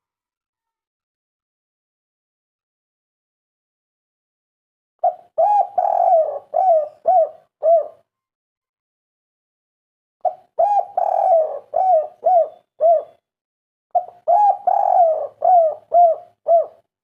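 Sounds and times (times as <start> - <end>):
dove cooing: 5.0 - 8.0, 10.2 - 13.2, 14.0 - 16.9.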